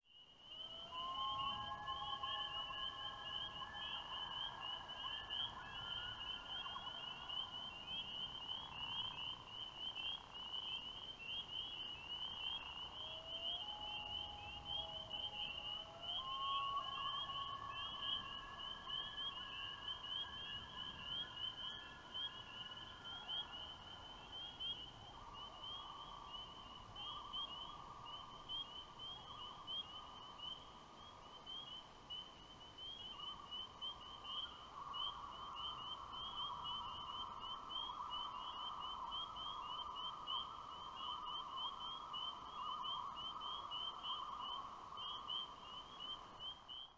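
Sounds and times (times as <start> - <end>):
frogs peeping: 0.2 - 46.9
loons wailing: 0.7 - 6.9.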